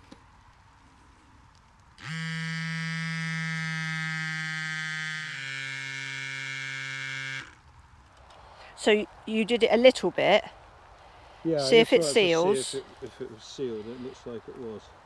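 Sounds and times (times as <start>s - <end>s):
electric pump motor drone: 2.0s - 7.6s.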